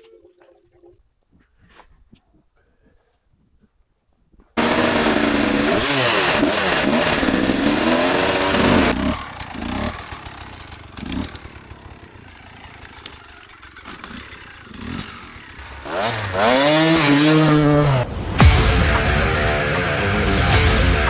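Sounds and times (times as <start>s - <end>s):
motorcycle engine revving: 4.6s - 20.6s.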